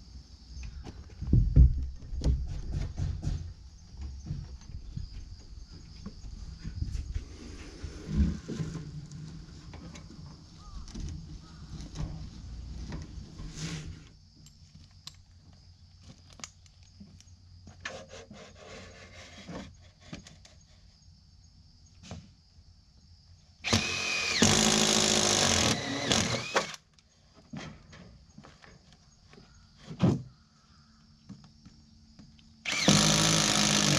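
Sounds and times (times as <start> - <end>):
power drill running: 23.6 - 26.8, 32.7 - 33.9.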